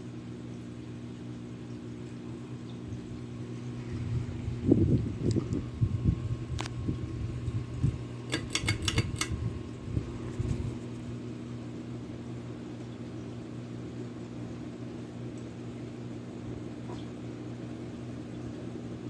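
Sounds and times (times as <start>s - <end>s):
ceiling fan motor hum: 0.0s - 19.0s
sharp clicks: 7.8s - 9.4s.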